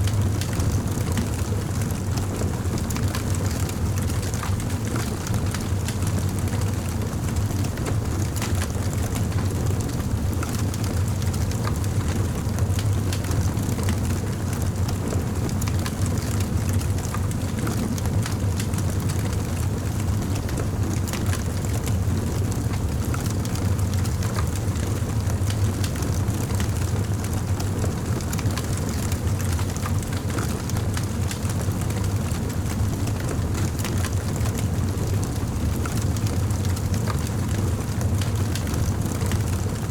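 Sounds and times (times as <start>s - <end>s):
campfire crackling and popping: 12.6s - 13.3s, 27.7s - 39.7s.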